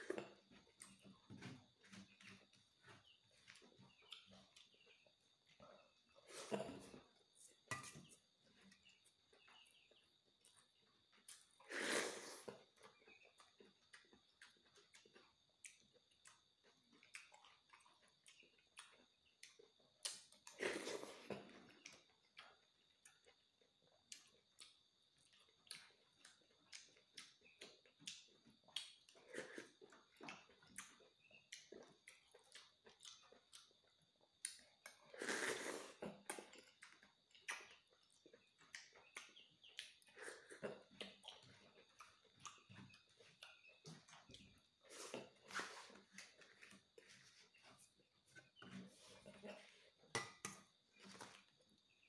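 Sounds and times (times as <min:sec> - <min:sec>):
wet chewing and lip-smacking: 0:12.8 - 0:20.6, 0:21.8 - 0:35.1, 0:36.0 - 0:47.9
slurping from a spoon: 0:35.1 - 0:36.1.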